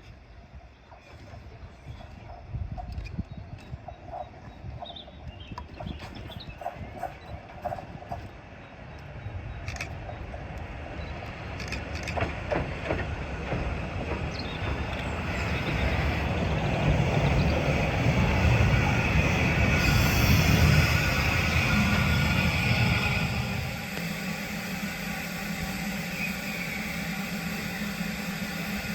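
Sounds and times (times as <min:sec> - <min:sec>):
train rumble: 0:00.0 - 0:28.9
high hiss: 0:14.7 - 0:28.9.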